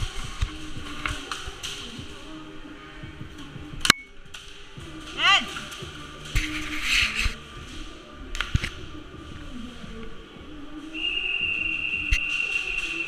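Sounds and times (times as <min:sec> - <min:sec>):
high-pitched whistle-like tone: 0:10.9 - 0:13.0.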